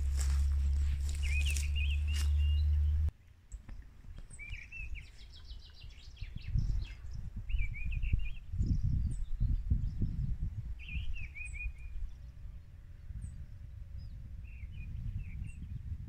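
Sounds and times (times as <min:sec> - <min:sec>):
loud low hum: 0:00.0 - 0:03.1
songbirds chirping: 0:00.0 - 0:16.0
wind rumbling on microphone: 0:00.0 - 0:16.0.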